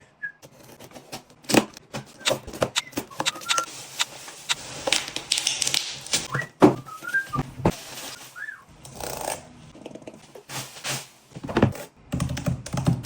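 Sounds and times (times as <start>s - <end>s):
packaging rustling and sliding: 0.6s - 8.6s, 10.2s - 11.8s.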